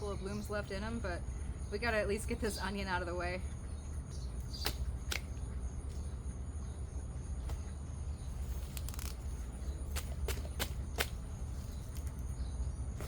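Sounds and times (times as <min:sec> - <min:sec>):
high insect buzz: 0:07.4 - 0:13.0.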